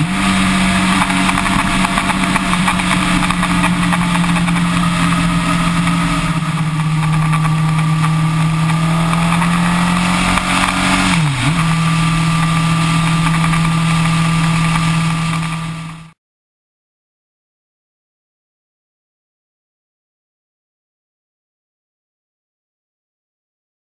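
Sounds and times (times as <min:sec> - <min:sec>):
wind rushing: 0:00.0 - 0:16.1
motorcycle engine cruising: 0:00.0 - 0:16.2.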